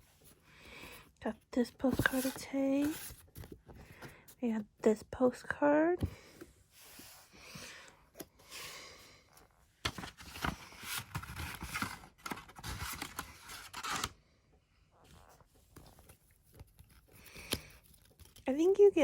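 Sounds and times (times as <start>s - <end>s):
paper and plastic packaging rustling: 1.6s - 4.3s, 9.8s - 14.2s.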